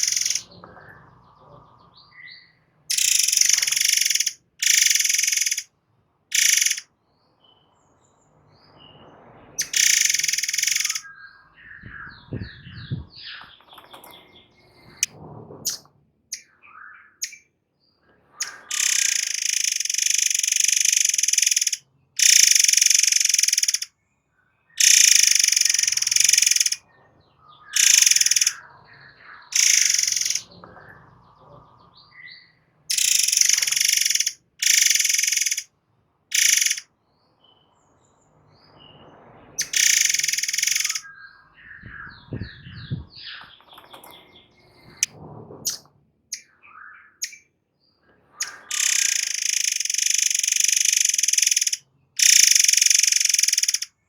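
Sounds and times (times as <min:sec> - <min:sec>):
bird singing high-pitched bursts: 0:00.0 - 0:00.6, 0:02.4 - 0:05.7, 0:06.3 - 0:06.9, 0:09.6 - 0:13.5, 0:17.1 - 0:17.5, 0:18.4 - 0:23.9, 0:24.8 - 0:26.8, 0:27.7 - 0:28.6, 0:29.5 - 0:30.6, 0:32.9 - 0:35.7, 0:36.3 - 0:36.9, 0:39.6 - 0:43.4, 0:47.1 - 0:47.5, 0:48.4 - 0:54.0
thin soft bird calls: 0:00.0 - 0:05.6, 0:06.3 - 0:06.8, 0:09.6 - 0:15.1, 0:27.6 - 0:31.6, 0:39.6 - 0:45.1.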